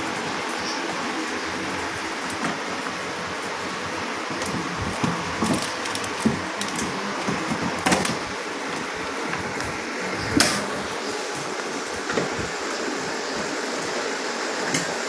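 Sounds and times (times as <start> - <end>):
plastic parts clicking: 0.0 - 10.8
steady background hum: 0.0 - 15.0.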